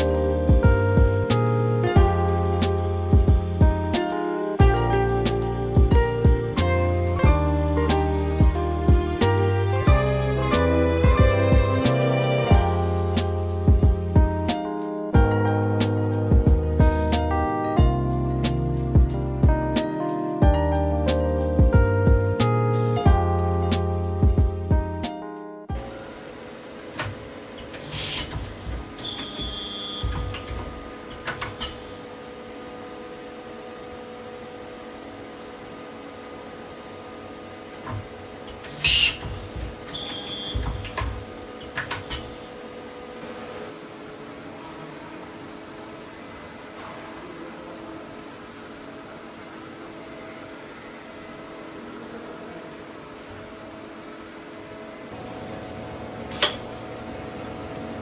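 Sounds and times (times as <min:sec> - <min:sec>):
high machine whine: 0:25.7 - 0:58.0
tool grinder humming: 0:25.8 - 0:43.2
air hissing: 0:25.8 - 0:44.8, 0:47.4 - 0:58.0
mechanical clicks and knocks: 0:26.9 - 0:32.1, 0:37.7 - 0:42.5.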